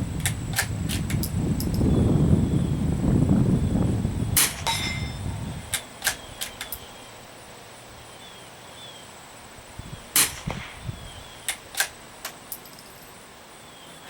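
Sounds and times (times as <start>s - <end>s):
rifle shot: 4.4s - 6.6s, 10.1s - 12.0s
rifle bolt clicks: 5.7s - 6.9s, 11.5s - 12.7s.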